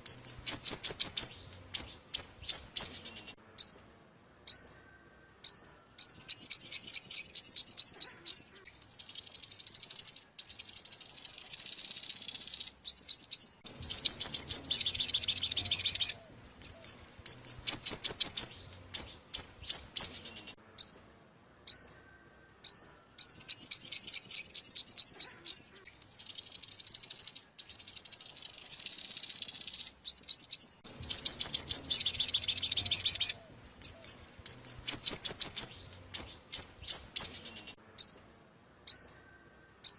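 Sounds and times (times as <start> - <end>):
sunbird song: 0.0 - 39.9.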